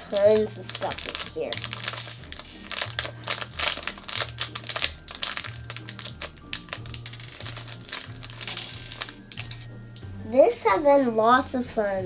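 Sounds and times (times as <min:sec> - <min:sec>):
plastic pieces clicking and rattling: 0:00.0 - 0:09.6
plastic bag crinkling: 0:00.0 - 0:09.7
background music with low bass: 0:00.0 - 0:12.0.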